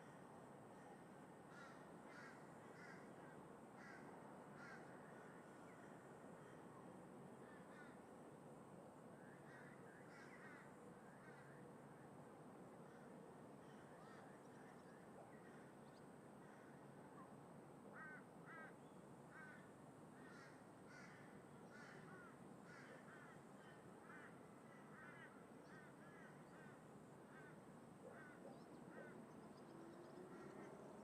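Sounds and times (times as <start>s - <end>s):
wind: 0.0s - 31.0s
crows cawing: 1.5s - 3.1s, 4.6s - 4.9s, 18.0s - 18.7s, 19.3s - 29.1s
distant traffic: 28.1s - 31.0s.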